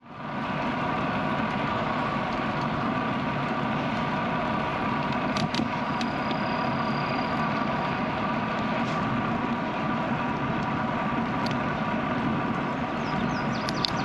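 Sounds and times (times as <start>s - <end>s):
bicycle tyre noise: 0.0s - 14.0s
brief clicks: 13.6s - 14.0s.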